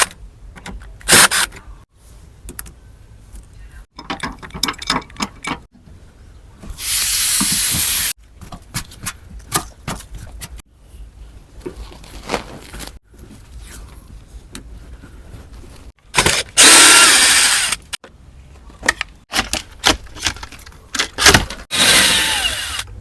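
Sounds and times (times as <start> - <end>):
handling clicks and knocks: 3.9 - 5.7, 18.0 - 21.7.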